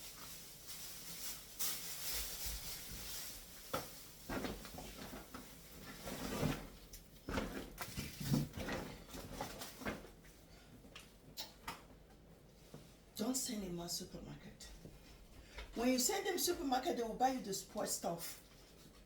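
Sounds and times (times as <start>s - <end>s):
rustling: 0.0s - 10.5s
knocks and clatters of items: 3.7s - 10.3s.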